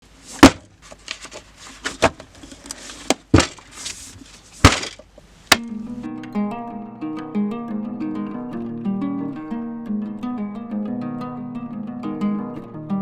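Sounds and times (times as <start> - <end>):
plucked-string music: 5.5 - 13.0.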